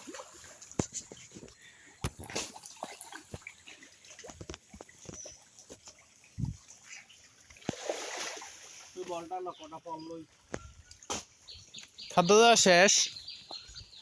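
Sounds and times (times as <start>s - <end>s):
fish splashing at water surface: 7.6s - 9.0s.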